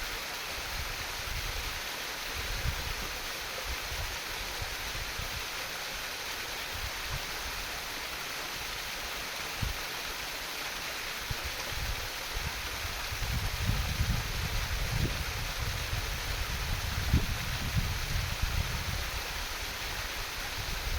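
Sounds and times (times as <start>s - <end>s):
stream water babbling: 0.0s - 20.9s
wind buffeting microphone: 11.3s - 19.8s.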